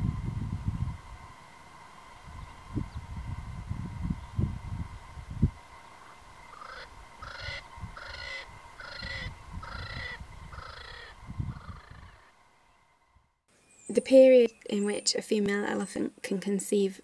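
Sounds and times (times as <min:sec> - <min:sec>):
bird calling: 0:05.6 - 0:12.4.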